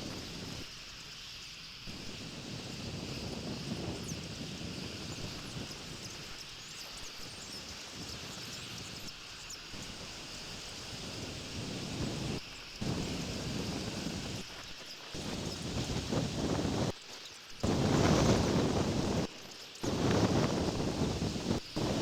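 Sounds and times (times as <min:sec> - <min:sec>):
wind buffeting microphone: 0:15.2 - 0:16.9, 0:17.6 - 0:22.0.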